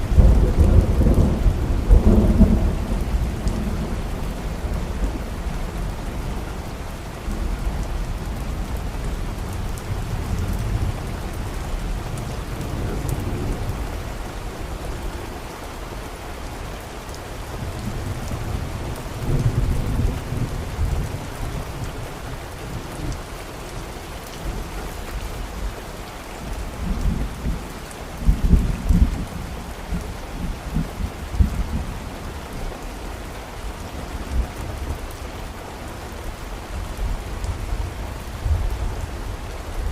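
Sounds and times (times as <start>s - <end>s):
steady rain falling: 0.0s - 39.9s
rolling thunder: 0.1s - 5.2s.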